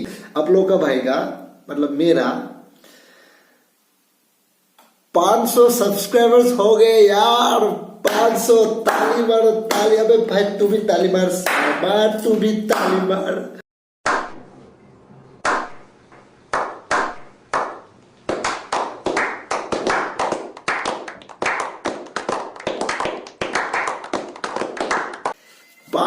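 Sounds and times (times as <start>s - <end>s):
hands clapping: 8.1s - 10.0s, 11.4s - 11.9s, 12.7s - 13.1s, 15.4s - 15.8s, 16.5s - 25.4s.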